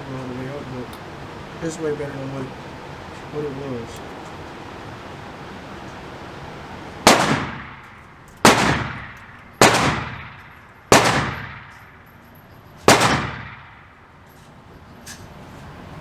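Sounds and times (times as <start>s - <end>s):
gunshots with echo: 7.0s - 11.9s, 12.9s - 13.9s.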